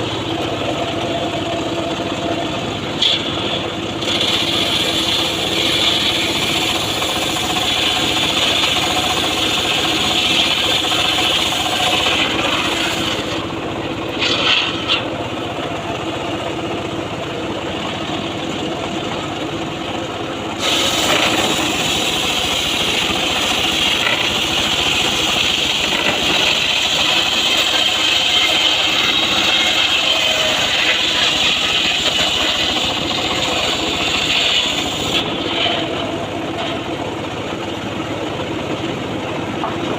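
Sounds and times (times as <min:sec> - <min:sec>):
saw cutting wood hiss: 0:02.9 - 0:13.5, 0:20.6 - 0:37.0.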